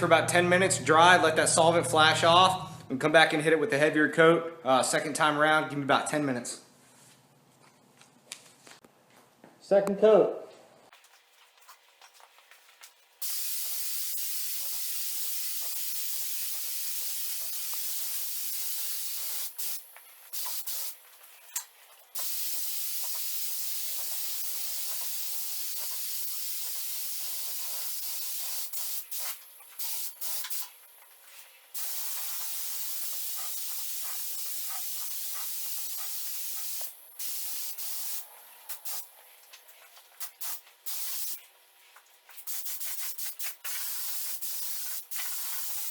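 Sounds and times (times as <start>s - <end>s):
paint spray gun hissing: 13.2s - 21.0s, 22.1s - 30.8s, 31.7s - 39.1s, 40.2s - 41.4s, 42.4s - 45.9s.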